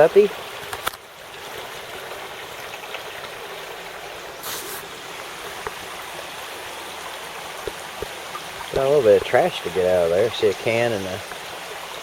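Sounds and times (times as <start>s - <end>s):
creek water rushing over a dam: 0.0s - 12.0s.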